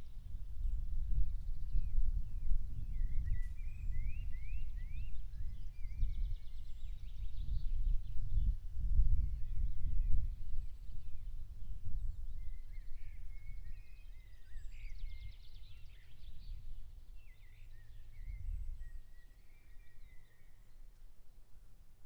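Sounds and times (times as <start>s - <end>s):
wind rumbling on microphone: 0.0s - 20.8s
songbirds singing: 0.0s - 21.2s.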